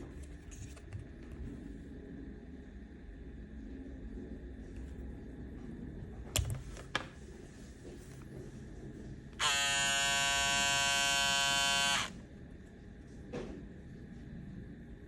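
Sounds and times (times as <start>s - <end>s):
electric shaver buzzing: 9.4s - 12.2s.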